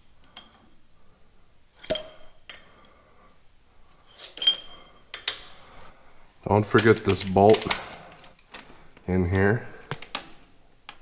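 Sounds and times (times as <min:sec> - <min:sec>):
metal tools clinking: 0:04.1 - 0:05.8.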